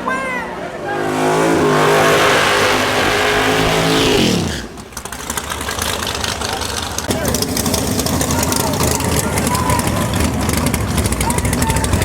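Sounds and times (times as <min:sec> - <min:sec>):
race car engine at full throttle: 0:00.0 - 0:12.0.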